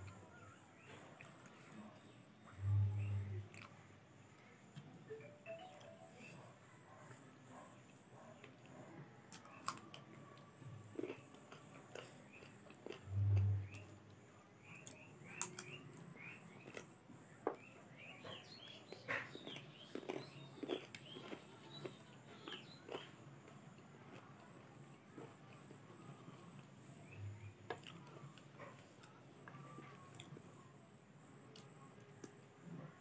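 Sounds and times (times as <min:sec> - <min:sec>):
chewing and wet mouth clicks: 0:14.7 - 0:16.9.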